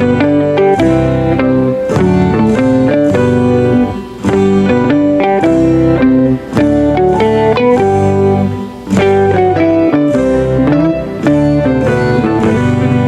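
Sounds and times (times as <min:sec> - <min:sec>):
plucked melody over bass line: 0:00.0 - 0:13.0.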